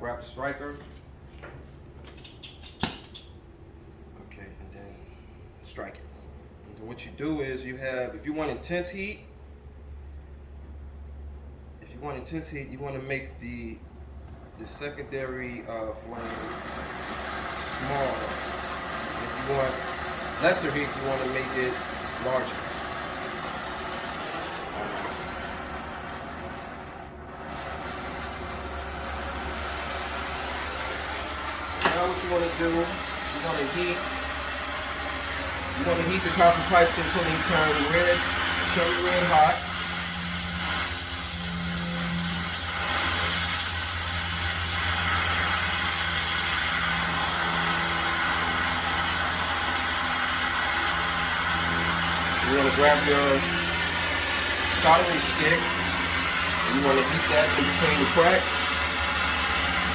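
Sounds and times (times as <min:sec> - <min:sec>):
brazing torch rushing: 0:14.5 - 0:59.9.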